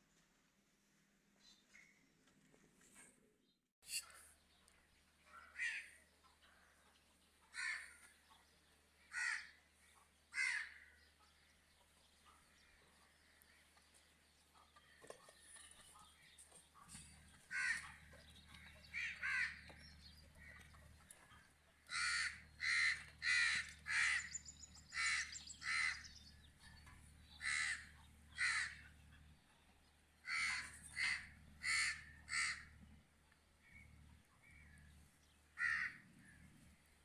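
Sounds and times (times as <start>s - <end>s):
crow cawing: 7.5s - 8.0s, 9.1s - 9.6s, 10.3s - 11.0s, 17.5s - 18.0s, 18.9s - 19.8s, 21.9s - 26.1s, 27.4s - 28.8s, 30.2s - 32.7s, 35.6s - 36.0s.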